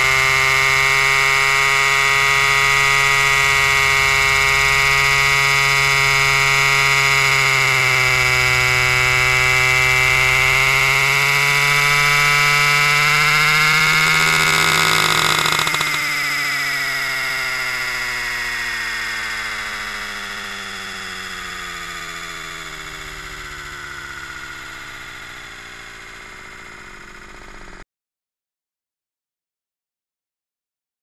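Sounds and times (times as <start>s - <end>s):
chainsaw sawing wood: 0.0s - 27.8s.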